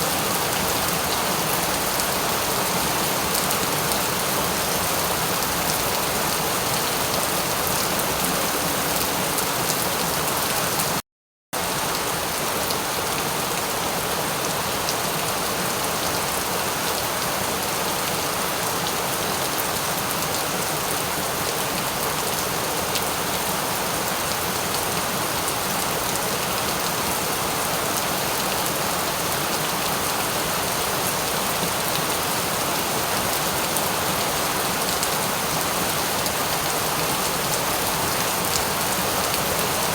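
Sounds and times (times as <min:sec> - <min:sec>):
heavy rain falling: 0:00.0 - 0:11.0, 0:11.6 - 0:39.9.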